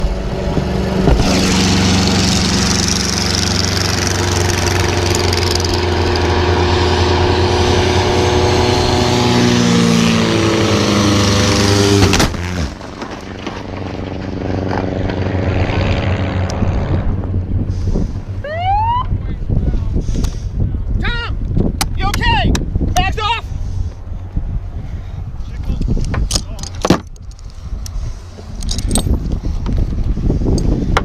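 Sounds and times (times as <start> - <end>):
racing plane engines: 0.0 - 21.0.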